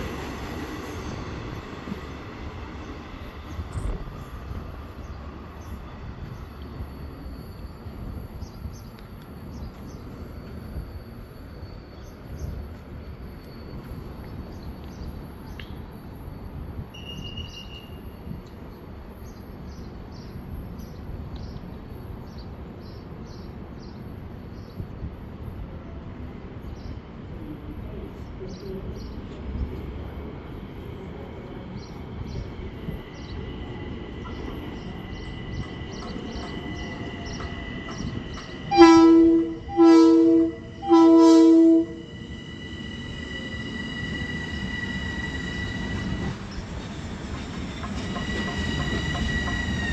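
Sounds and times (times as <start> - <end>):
train horn blasts: 38.6 - 42.1.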